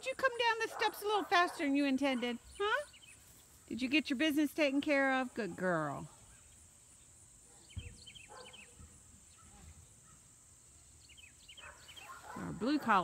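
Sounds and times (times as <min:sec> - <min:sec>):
bird chirping: 0:02.1 - 0:03.8, 0:06.2 - 0:12.6.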